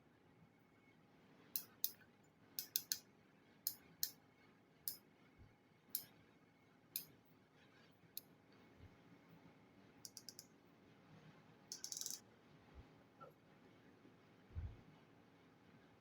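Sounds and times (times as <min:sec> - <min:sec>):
small hard parts clicking: 0:02.6 - 0:03.0, 0:10.1 - 0:10.5, 0:11.7 - 0:12.2.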